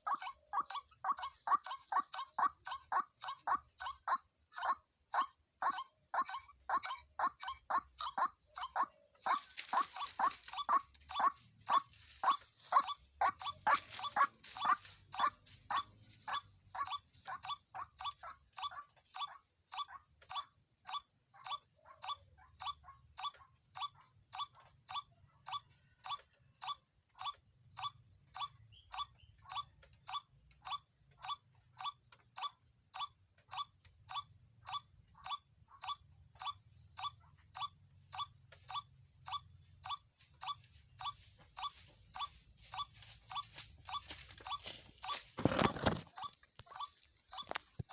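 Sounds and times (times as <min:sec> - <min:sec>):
waterhen calling: 0:00.0 - 0:18.8, 0:40.2 - 0:47.8.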